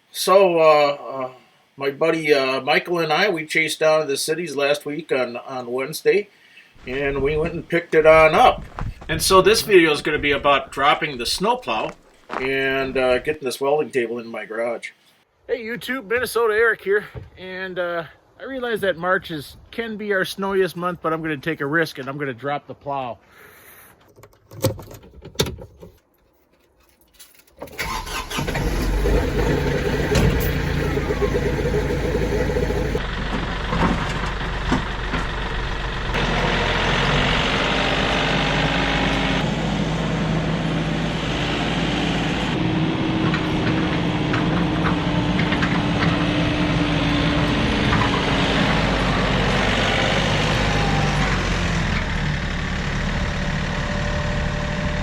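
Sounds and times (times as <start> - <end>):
tractor engine starting and running: 6.8 - 13.4, 27.5 - 55.0.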